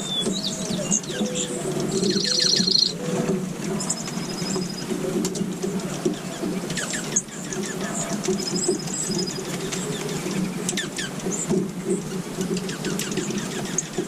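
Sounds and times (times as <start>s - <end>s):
bird high trill: 0.0s - 4.9s
low bird chatter: 0.0s - 14.0s
small birds chirping: 0.0s - 14.0s.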